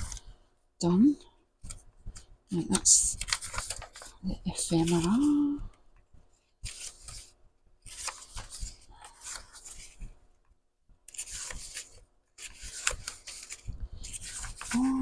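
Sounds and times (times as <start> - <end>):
paper sheets rustling: 1.7 - 5.6, 6.6 - 10.2, 11.1 - 15.0.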